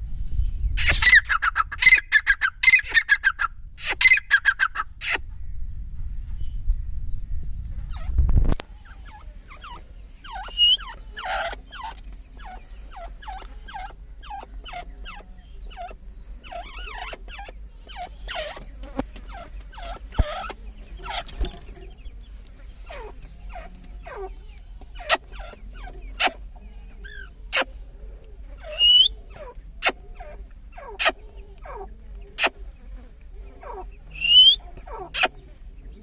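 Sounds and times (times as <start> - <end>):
low rumble: 5.2 - 16.4
francolin calling: 8.7 - 27.7, 28.5 - 32.7, 33.6 - 35.6.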